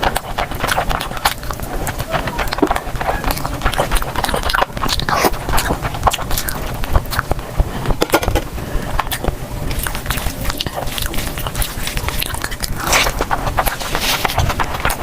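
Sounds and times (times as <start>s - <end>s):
chewing and mouth noises: 0.0s - 8.0s, 8.6s - 15.0s
crisp crackles: 9.0s - 15.0s.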